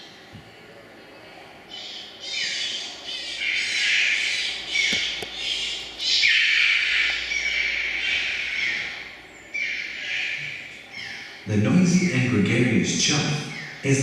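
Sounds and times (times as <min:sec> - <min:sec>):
birds squawking harshly: 0:01.7 - 0:11.5, 0:13.4 - 0:13.9.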